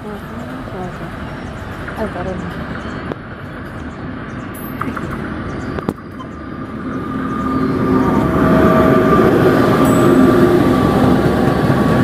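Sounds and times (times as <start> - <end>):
electric train rumble: 0.0 - 12.0
steady whine: 3.0 - 12.0.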